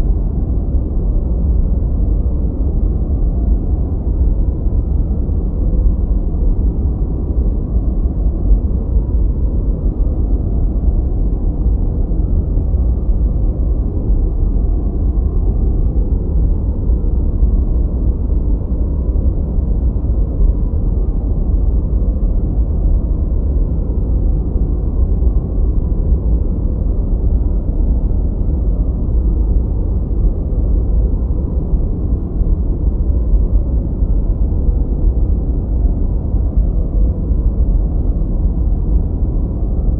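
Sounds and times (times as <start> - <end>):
deep rumbling brown noise: 0.0 - 39.9.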